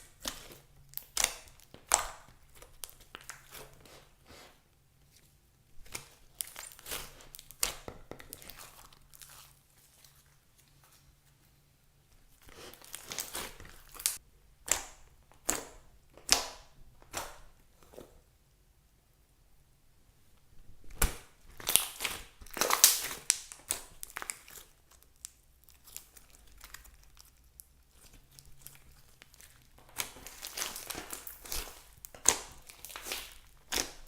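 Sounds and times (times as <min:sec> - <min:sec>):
slime popping: 0:20.9 - 0:24.6, 0:28.7 - 0:34.0
slime crackling when squeezed: 0:21.6 - 0:34.0.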